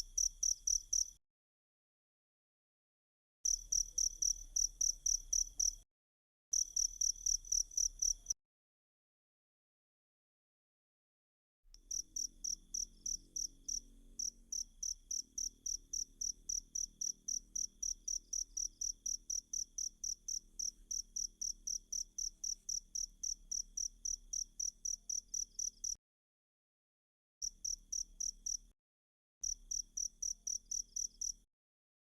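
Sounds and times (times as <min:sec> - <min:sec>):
cricket chirping: 0:00.0 - 0:01.2, 0:03.5 - 0:05.8, 0:06.6 - 0:08.4, 0:11.8 - 0:26.0, 0:27.4 - 0:28.7, 0:29.4 - 0:31.4.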